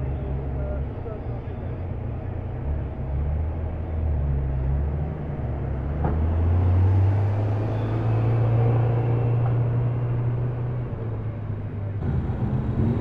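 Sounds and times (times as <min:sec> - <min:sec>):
car engine revving: 0:12.0 - 0:13.0.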